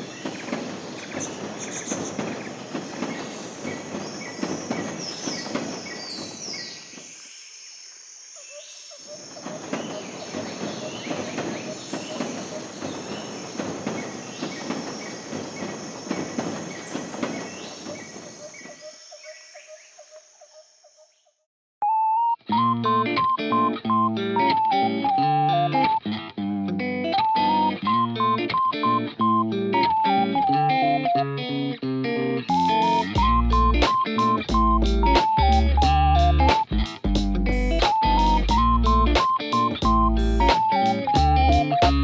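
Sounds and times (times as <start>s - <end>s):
train running on rails: 0.0s - 7.3s, 9.0s - 19.1s, 32.5s - 36.4s
high insect-like hiss: 0.2s - 21.2s.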